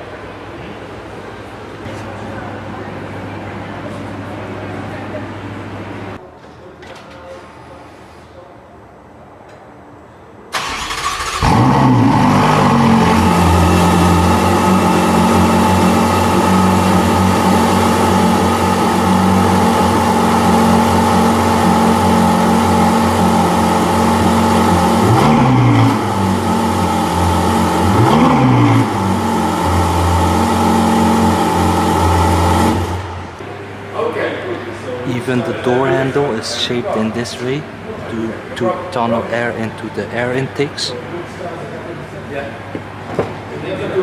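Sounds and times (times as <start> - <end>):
car engine starting and idling: 10.5 - 33.4
engine throttle blips: 10.6 - 33.6.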